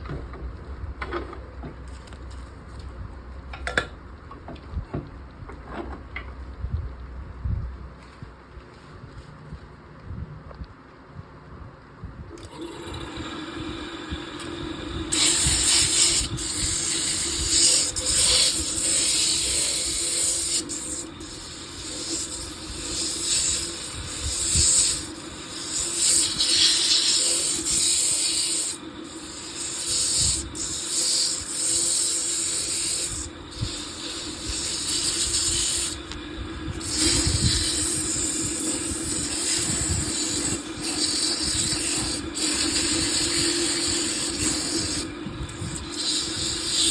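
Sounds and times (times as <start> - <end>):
tool hissing on spinning wood: 12.4 - 46.9
wood lathe humming: 12.4 - 46.9.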